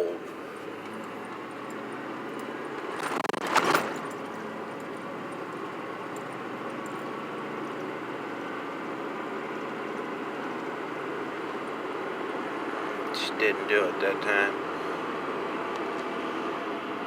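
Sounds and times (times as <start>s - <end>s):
engine and road noise: 0.0s - 17.0s
rustling rattle: 0.3s - 7.9s.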